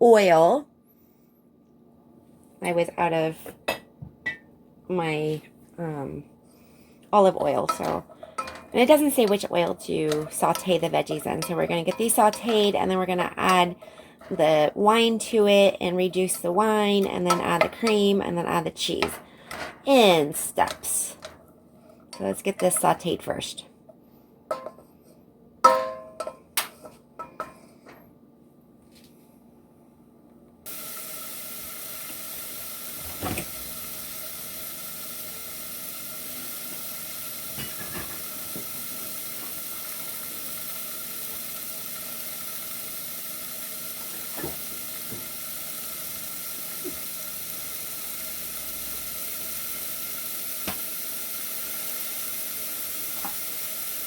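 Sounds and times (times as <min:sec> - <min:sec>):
vegetables sizzling in oil: 0:07.4 - 0:19.1, 0:30.7 - 0:54.0.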